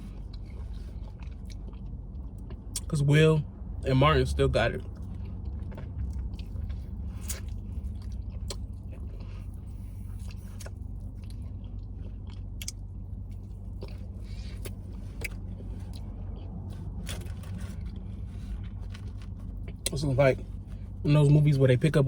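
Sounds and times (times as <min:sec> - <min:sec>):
person chewing food: 0:00.0 - 0:02.9, 0:04.8 - 0:21.0
steady low hum: 0:00.0 - 0:22.0
wet mouth clicks and smacks: 0:12.6 - 0:12.8.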